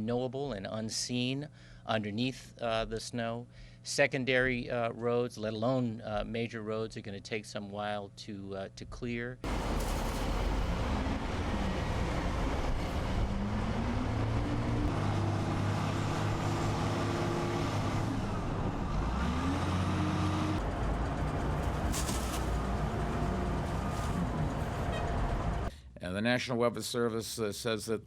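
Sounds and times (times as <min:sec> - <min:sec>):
heavy vehicle engines revving: 0:09.5 - 0:25.7
short clatter: 0:21.6 - 0:22.7.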